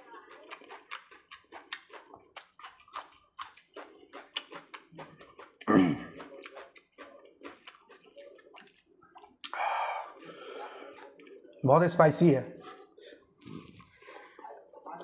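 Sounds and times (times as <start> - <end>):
wet chewing and lip-smacking: 0.0 - 10.2, 10.8 - 11.6.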